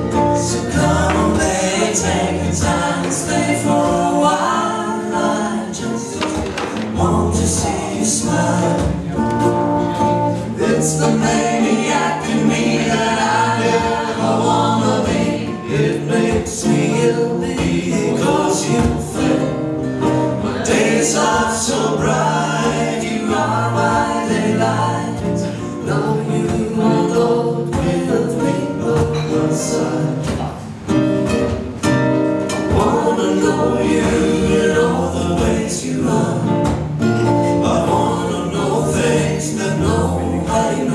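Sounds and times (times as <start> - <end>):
acoustic guitars strumming: 0.0 - 40.9
people singing together: 0.0 - 40.9
ukulele strumming: 0.0 - 40.9.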